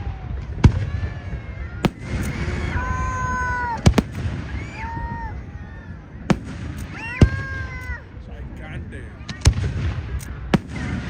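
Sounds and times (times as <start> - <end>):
fireworks bangs: 0.1 - 8.2, 8.8 - 11.0
fireworks whistling: 1.8 - 5.3, 10.2 - 11.0.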